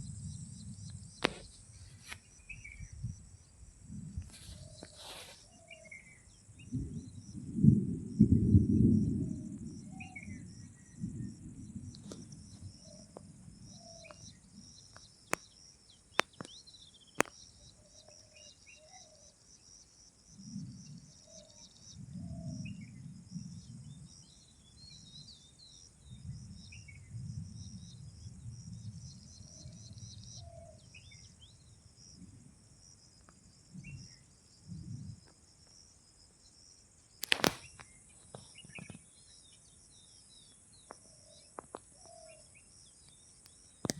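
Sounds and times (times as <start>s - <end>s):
insects droning: 0.0s - 43.9s
birds chirping: 12.1s - 19.3s
sharp clicks: 16.2s - 16.6s, 37.2s - 37.9s.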